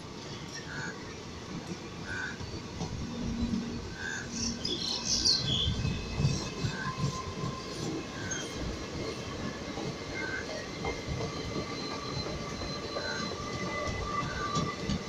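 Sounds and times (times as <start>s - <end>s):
train wheels clattering on rails: 0.0s - 15.0s.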